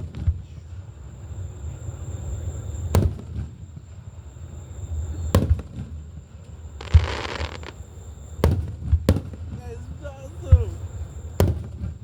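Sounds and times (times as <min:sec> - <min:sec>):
fireworks bursting with sharp bangs: 0:00.0 - 0:12.0
short hiss: 0:06.8 - 0:07.9.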